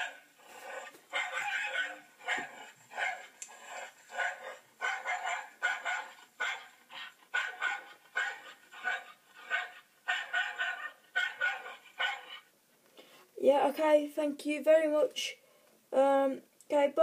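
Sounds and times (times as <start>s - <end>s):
dog barking: 1.1s - 12.5s.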